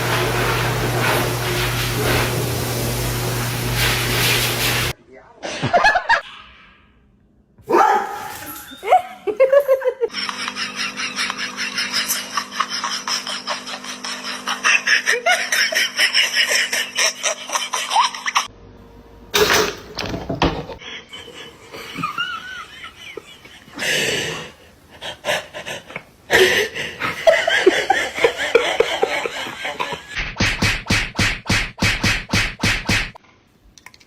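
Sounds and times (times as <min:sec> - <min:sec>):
people laughing: 0:05.4 - 0:06.5, 0:08.9 - 0:18.5, 0:20.8 - 0:24.2, 0:24.9 - 0:30.2.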